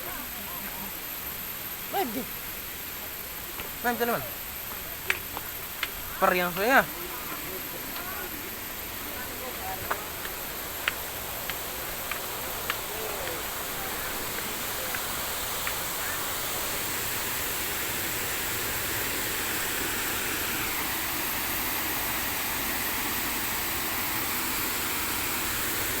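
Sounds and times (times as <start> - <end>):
waterfall rushing: 6.2 - 26.0.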